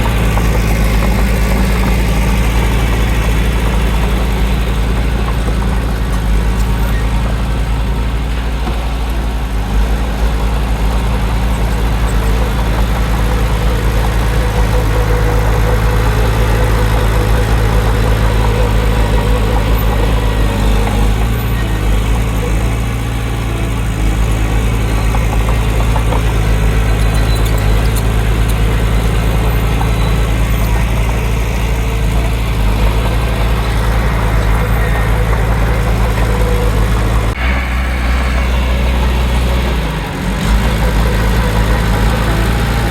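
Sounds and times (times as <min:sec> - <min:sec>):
heavy diesel engine droning: 0:00.0 - 0:42.9.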